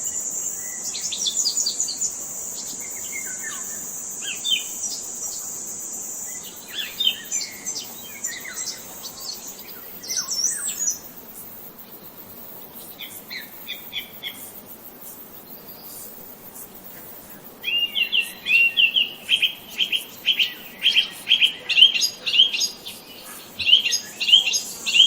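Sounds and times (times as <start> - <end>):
birds chirping and twittering: 0.0 - 11.1, 16.8 - 25.0
high insect drone: 0.0 - 25.0.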